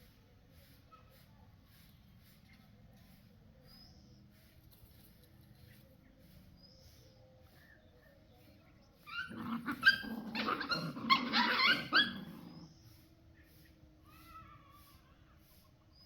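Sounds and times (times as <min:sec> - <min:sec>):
puppies whining and yelping: 0:09.0 - 0:12.7.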